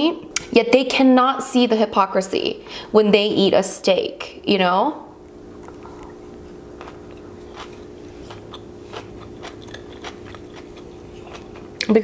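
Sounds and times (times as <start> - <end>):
steady low hum: 0.0 - 12.0
wet chewing clicks and smacks: 5.6 - 11.9.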